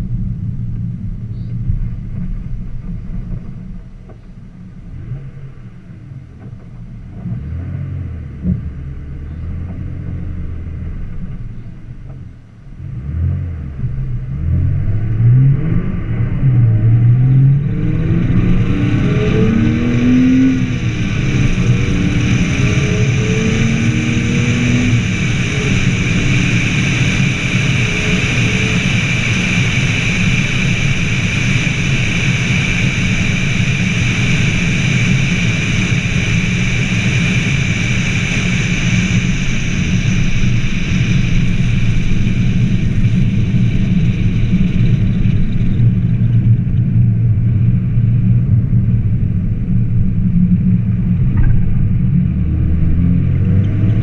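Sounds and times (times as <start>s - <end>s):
car engine accelerating: 0.0s - 54.0s
wind rush: 14.4s - 54.0s.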